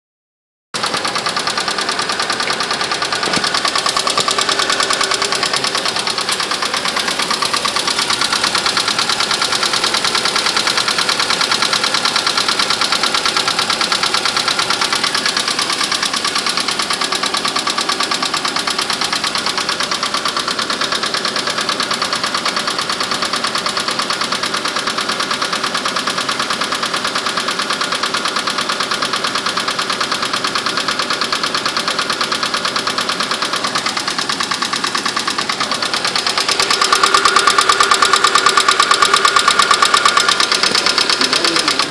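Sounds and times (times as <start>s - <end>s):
car engine running: 0.8s - 41.9s
rapid engine knocking: 0.8s - 41.9s.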